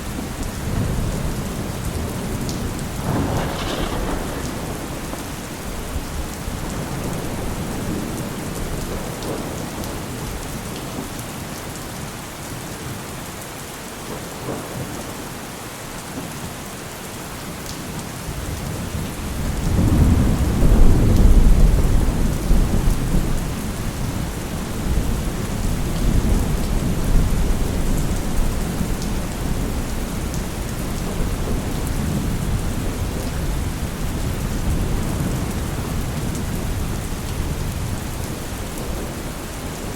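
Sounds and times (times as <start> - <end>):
heavy rain: 0.0 - 39.9
thunder rolling: 0.1 - 9.6, 19.4 - 33.8.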